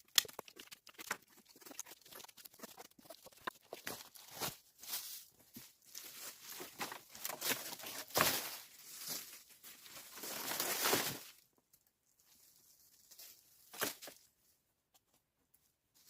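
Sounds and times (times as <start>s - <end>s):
rustling and crunching handling: 3.4s - 11.4s.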